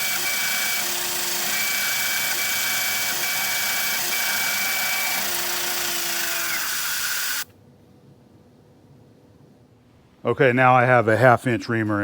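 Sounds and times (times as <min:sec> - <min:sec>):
milling machine hum: 0:00.0 - 0:07.4
drill squealing: 0:00.0 - 0:07.5.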